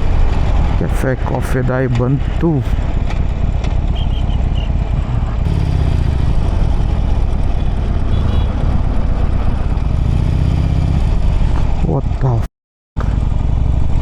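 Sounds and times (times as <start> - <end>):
motorcycle engine running: 2.8 - 12.4, 13.0 - 14.0.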